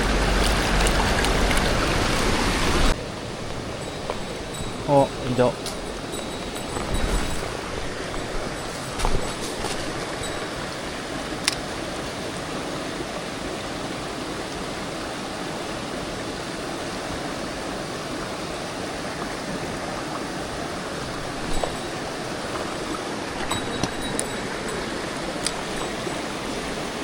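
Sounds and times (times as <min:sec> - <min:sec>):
stream rushing over rocks: 0:00.0 - 0:27.0.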